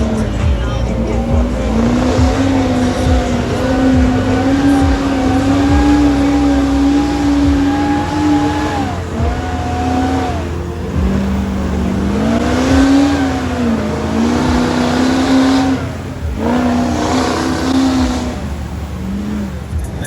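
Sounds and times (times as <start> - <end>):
truck engine revving: 0.0 - 20.0.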